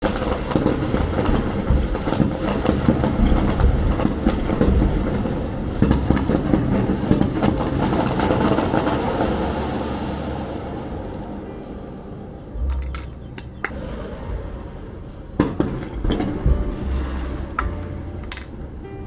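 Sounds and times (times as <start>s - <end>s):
fireworks crackling and popping: 0.0s - 10.6s
low rumble of fireworks bursts: 0.0s - 19.0s.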